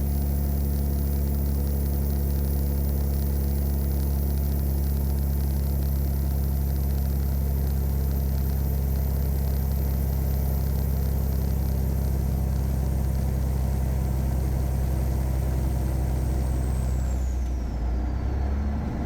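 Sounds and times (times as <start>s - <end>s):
diesel truck engine droning: 13.7s - 19.0s.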